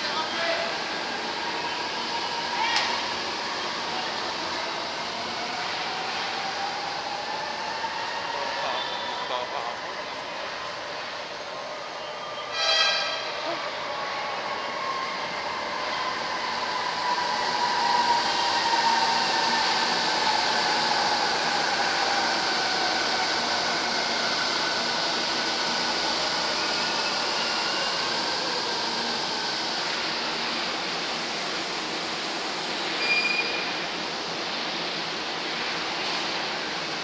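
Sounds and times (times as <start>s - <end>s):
train wheel and track noise: 0.0s - 37.0s.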